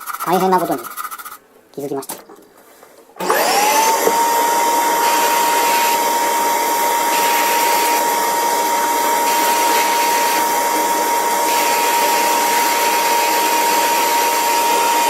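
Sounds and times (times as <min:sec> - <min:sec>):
small electric motor whining: 0:03.2 - 0:15.0.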